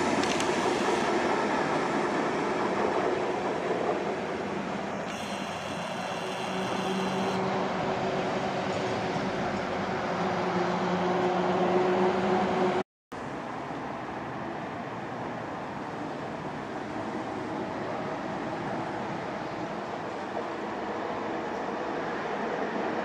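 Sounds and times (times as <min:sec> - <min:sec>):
distant train rumble: 0:00.0 - 0:05.1
approaching train droning: 0:00.0 - 0:12.8.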